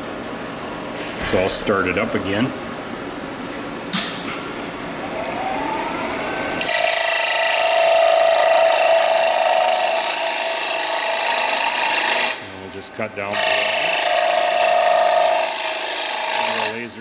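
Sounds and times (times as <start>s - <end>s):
wood lathe whining: 5.0s - 12.4s, 13.3s - 16.9s
tool cutting spinning wood: 6.6s - 12.4s, 13.2s - 16.9s.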